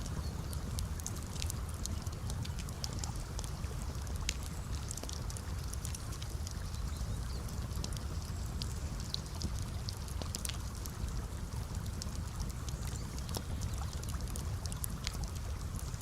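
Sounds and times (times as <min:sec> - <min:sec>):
campfire crackling and popping: 0:00.0 - 0:16.0
low rumble of burning: 0:00.0 - 0:16.0.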